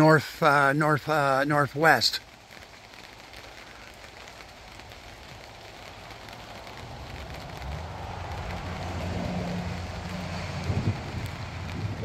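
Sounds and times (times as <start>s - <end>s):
rain pattering: 0.0s - 12.0s
low rumble: 6.6s - 12.0s.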